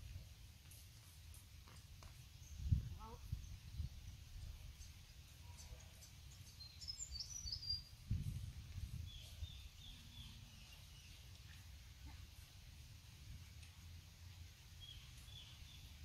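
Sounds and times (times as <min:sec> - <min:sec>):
small birds chirping: 0:01.7 - 0:12.5, 0:14.3 - 0:16.0.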